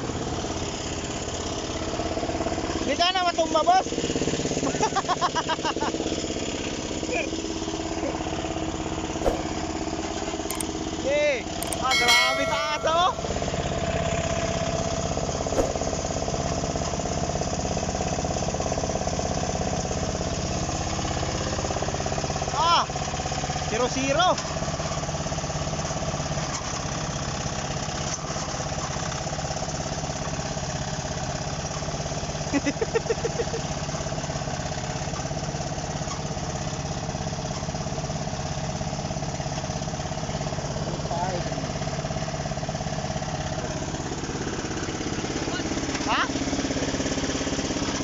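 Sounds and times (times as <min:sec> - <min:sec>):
excavator diesel engine chugging: 0:00.0 - 0:48.0
brief click: 0:10.5 - 0:10.7.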